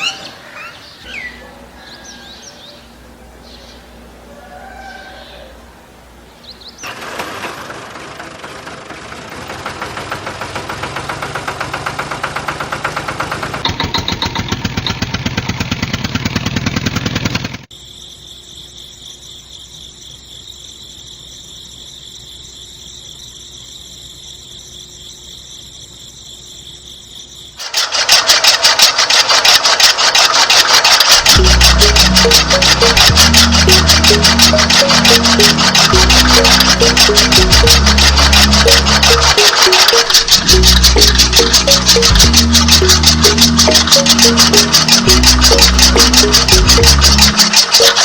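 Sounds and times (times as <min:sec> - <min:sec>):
small engine pulsing: 0:06.8 - 0:17.7, 0:27.6 - 0:48.0
engine high whine: 0:31.1 - 0:48.0.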